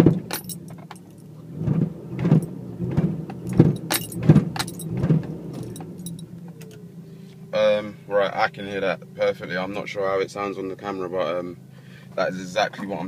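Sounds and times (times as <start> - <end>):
sharp engine knocks: 0.0 - 6.0
car engine running: 0.0 - 13.0.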